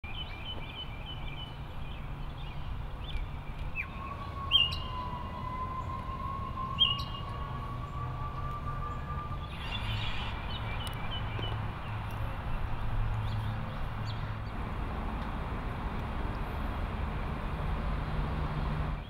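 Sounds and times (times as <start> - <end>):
birds chirping: 0.1 - 14.6.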